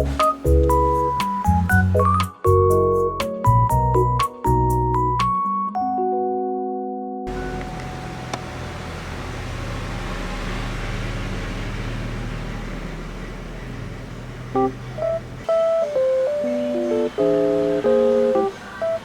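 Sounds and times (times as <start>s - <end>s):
vehicle engine rumble: 7.3s - 17.7s
plucked guitar music: 14.6s - 19.0s.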